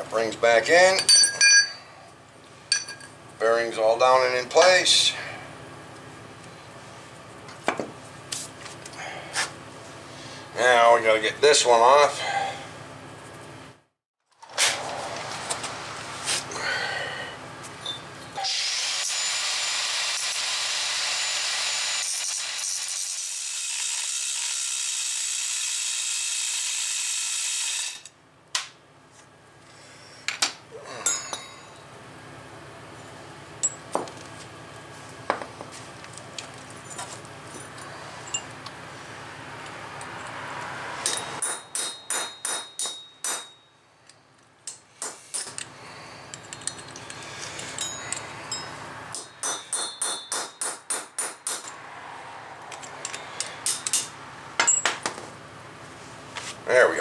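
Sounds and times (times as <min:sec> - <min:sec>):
metal tools clinking: 0:00.7 - 0:01.9, 0:02.7 - 0:03.2, 0:17.8 - 0:18.4, 0:30.9 - 0:31.9, 0:33.6 - 0:33.9, 0:36.4 - 0:38.6, 0:41.0 - 0:43.7, 0:44.7 - 0:50.3, 0:52.7 - 0:55.1
angle grinder grinding metal: 0:18.3 - 0:28.1.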